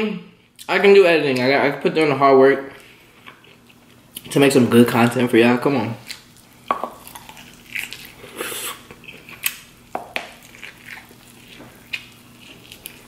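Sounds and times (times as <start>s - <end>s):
biting and chewing corn: 7.0s - 13.0s.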